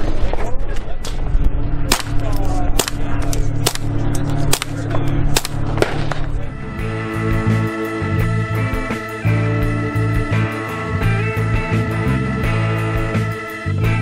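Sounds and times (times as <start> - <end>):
suppressed gunshots: 2.8 - 6.3
guitar music: 3.4 - 14.0.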